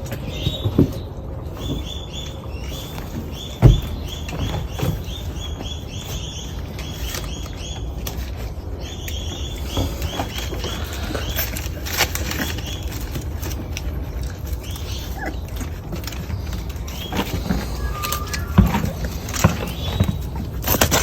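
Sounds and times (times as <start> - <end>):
puppy squeaking: 14.6 - 16.2, 16.8 - 20.9.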